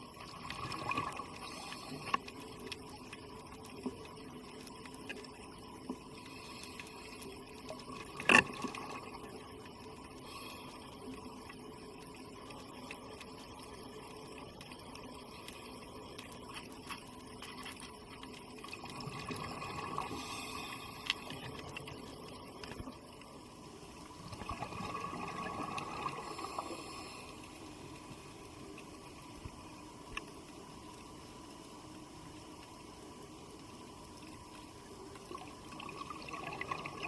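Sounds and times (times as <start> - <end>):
faint crackle: 0.0 - 37.0
underwater wash of sea water: 18.3 - 23.2, 24.2 - 28.1, 35.2 - 37.0.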